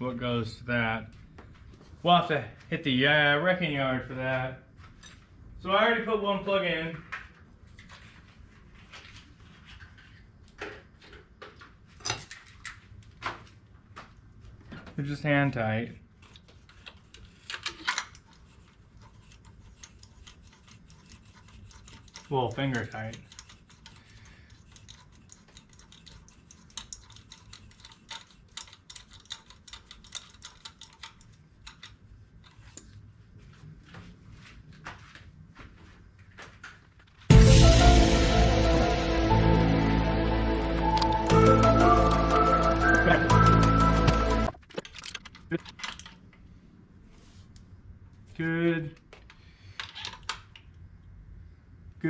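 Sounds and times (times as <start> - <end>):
ratchet wrench clicking: 19.0 - 32.0.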